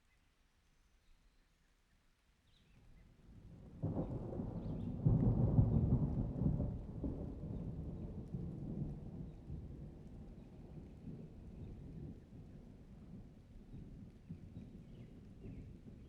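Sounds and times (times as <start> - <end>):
rolling thunder: 3.6 - 12.4.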